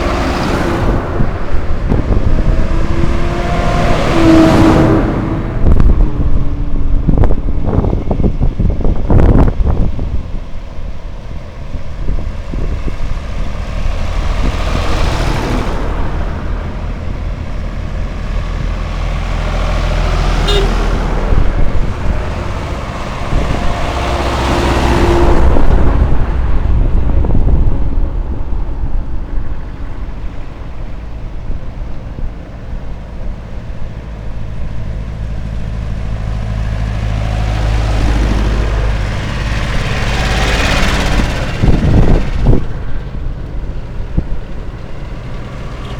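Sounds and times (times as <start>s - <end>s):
vehicle engines running: 0.0s - 45.9s.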